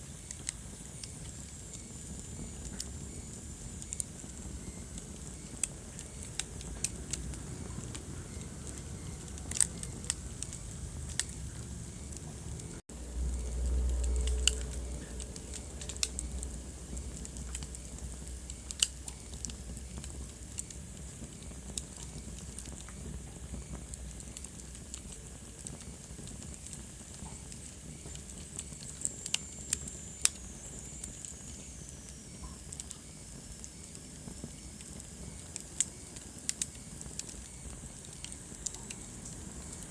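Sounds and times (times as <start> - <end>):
hiss of flames: 0.0 - 39.9
low rumble of flames: 0.0 - 39.9
wood fire crackling: 0.0 - 39.9.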